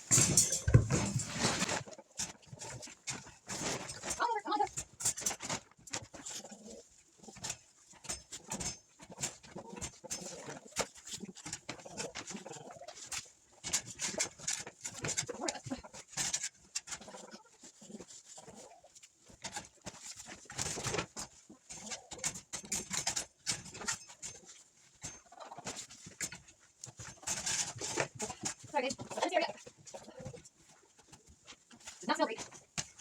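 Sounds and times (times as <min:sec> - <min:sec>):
rustling and scraping clicks: 0:00.0 - 0:33.0.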